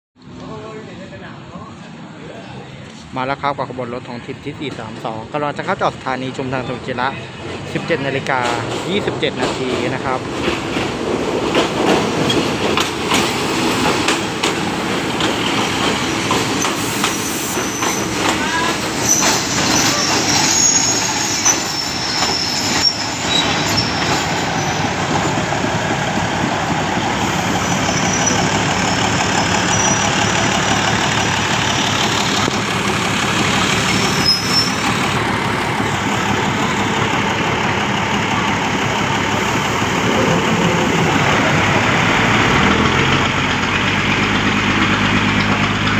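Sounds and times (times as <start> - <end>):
diesel train engine passing: 0.3 - 45.9
brakes squealing: 16.4 - 25.5, 27.2 - 45.9
wheels clicking over rail joints: 42.4 - 45.9.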